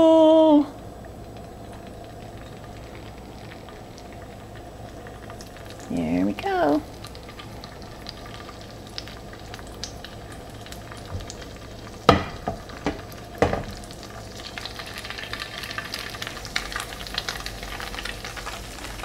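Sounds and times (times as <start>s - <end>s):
tofu sizzling in hot oil: 0.0s - 19.0s
knocks of pieces landing in pan: 12.1s - 13.8s.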